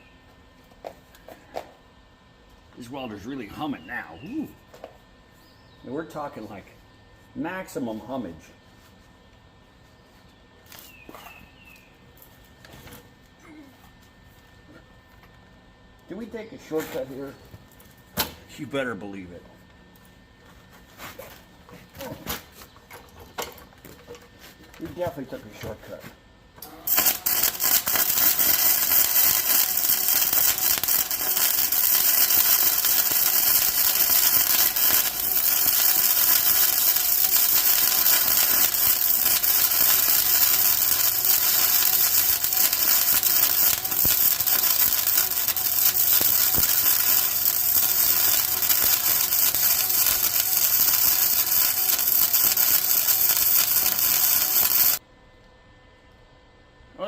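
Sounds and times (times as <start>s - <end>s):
low welder hum: 0.0s - 57.0s
electric welder crackling hiss: 26.6s - 55.0s.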